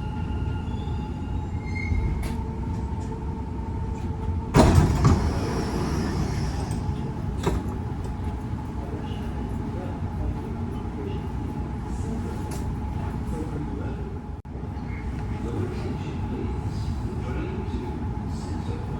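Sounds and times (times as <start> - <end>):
train carriage rumbling: 0.0 - 18.9
sliding doors hissing open: 4.5 - 7.6
loud clunk: 4.6 - 6.8.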